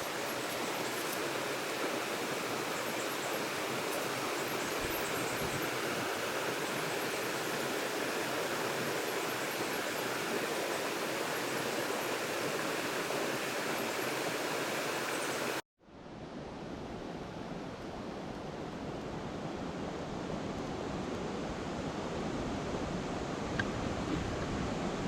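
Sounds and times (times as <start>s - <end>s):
running water rushing: 0.0s - 15.6s.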